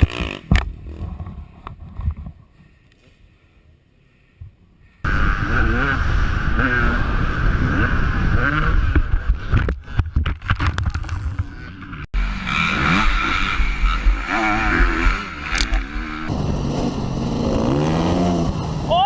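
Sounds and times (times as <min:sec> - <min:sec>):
dirt bike engines revving: 0:05.1 - 0:10.0, 0:11.3 - 0:19.0.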